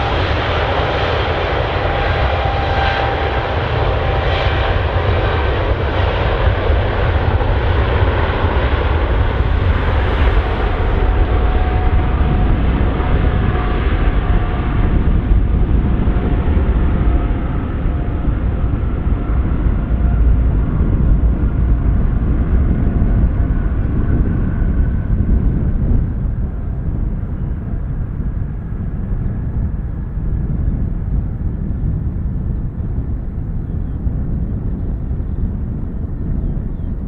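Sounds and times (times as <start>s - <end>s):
jet engines at takeoff thrust: 0.0s - 37.0s.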